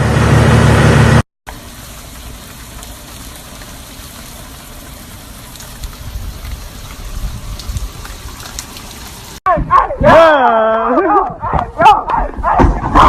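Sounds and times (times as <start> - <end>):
water hissing: 1.5 - 9.4.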